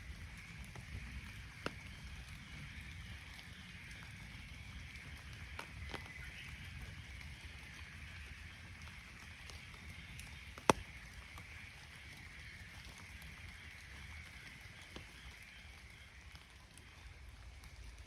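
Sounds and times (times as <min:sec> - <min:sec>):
faint outdoor ambience: 0:00.0 - 0:18.0
sharp tap: 0:10.6 - 0:10.9.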